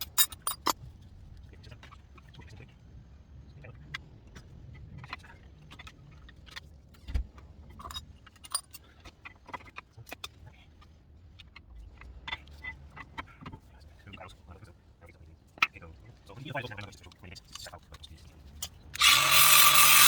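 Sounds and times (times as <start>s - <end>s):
metallic clinks of hand tools: 0.0s - 0.8s, 7.9s - 8.7s.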